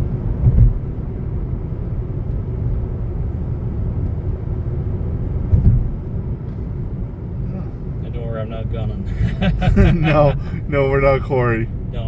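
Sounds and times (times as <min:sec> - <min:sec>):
road and engine noise in car: 0:00.0 - 0:12.0
low thumps: 0:00.4 - 0:01.0, 0:05.5 - 0:06.1, 0:09.2 - 0:10.7.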